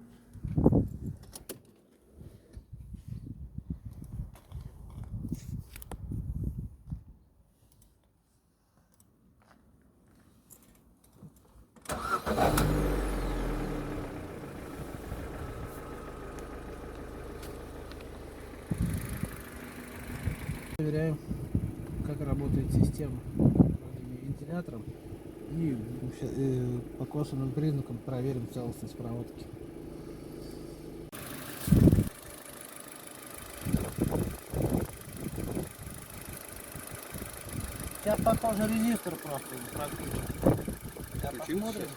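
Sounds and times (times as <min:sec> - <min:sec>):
car engine starting and idling: 0:11.8 - 0:41.9.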